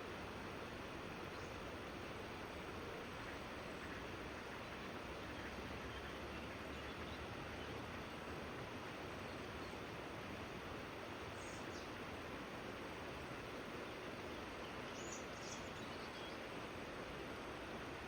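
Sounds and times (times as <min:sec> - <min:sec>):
river water rushing: 0:00.0 - 0:18.0
faint bird chirps: 0:14.6 - 0:16.5.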